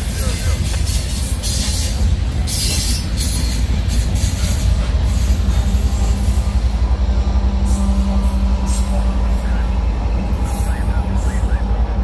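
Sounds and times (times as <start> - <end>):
train cars rumbling on rails: 0.0 - 12.0
wheel squeal: 0.4 - 6.1.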